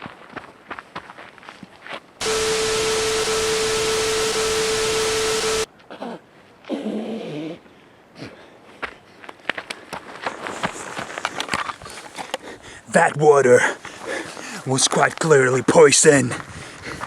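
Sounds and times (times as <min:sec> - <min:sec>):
static hiss: 0:02.2 - 0:05.7
steady beep: 0:02.2 - 0:05.7.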